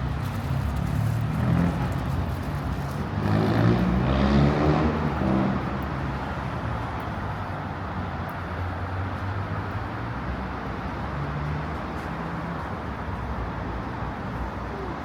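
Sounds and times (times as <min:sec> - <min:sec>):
street traffic rumble: 0:00.0 - 0:15.0
vehicle engine passing by: 0:00.6 - 0:05.8.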